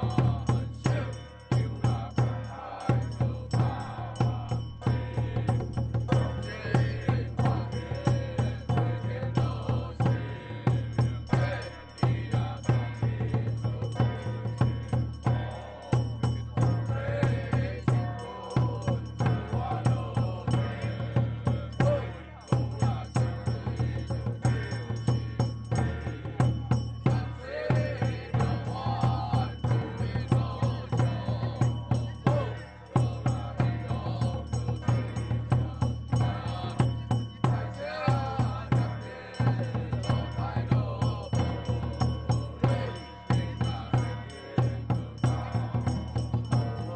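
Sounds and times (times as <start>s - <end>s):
person chanting: 0.0s - 14.6s
chanting: 0.0s - 46.9s
drum beats: 0.0s - 46.9s
fast knocking percussion: 0.0s - 46.9s.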